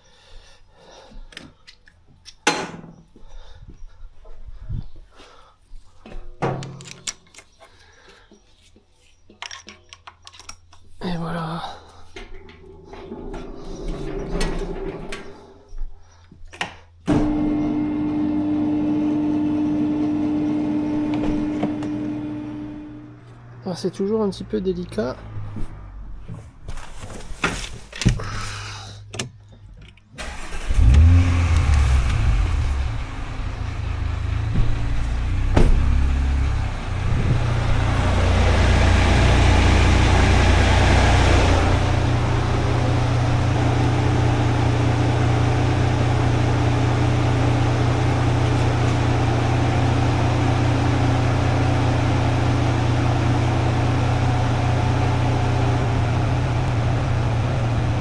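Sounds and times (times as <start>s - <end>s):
motor humming: 12.4s - 15.8s, 17.1s - 23.6s.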